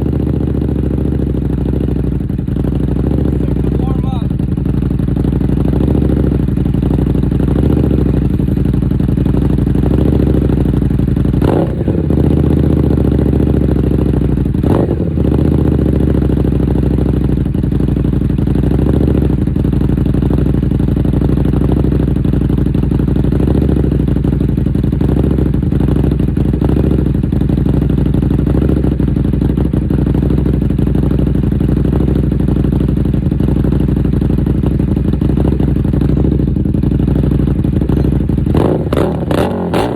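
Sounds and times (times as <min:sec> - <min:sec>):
motorcycle engine idling: 0:00.0 - 0:39.9
motorcycle throttle blips: 0:00.0 - 0:39.9.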